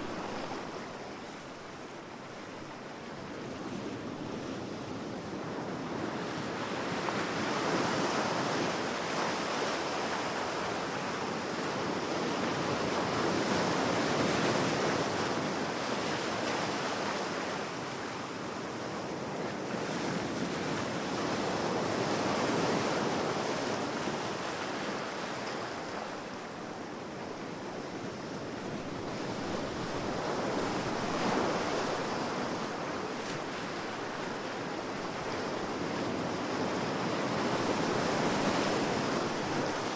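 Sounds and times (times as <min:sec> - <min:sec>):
waves washing onto a beach: 0:00.0 - 0:39.9.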